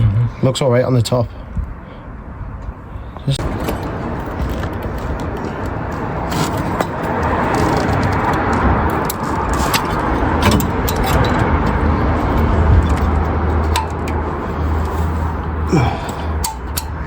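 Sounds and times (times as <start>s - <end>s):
steady rushing noise: 1.5s - 17.0s
hand tools clicking: 12.8s - 14.2s, 15.8s - 17.0s.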